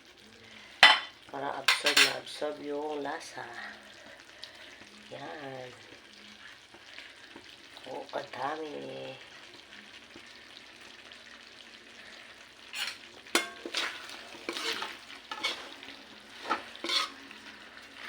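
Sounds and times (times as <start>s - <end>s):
food sizzling in a pan: 0.0s - 18.0s
utensil stirring and scraping pan: 12.6s - 18.0s
utensil clacking against pan: 12.8s - 15.8s, 16.4s - 17.2s.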